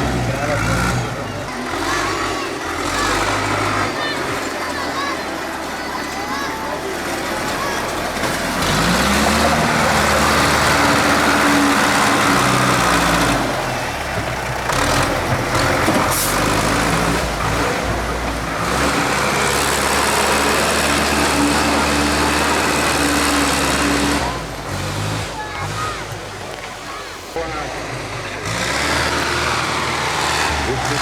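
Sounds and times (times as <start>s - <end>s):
tractor engine revving: 0.0s - 31.0s.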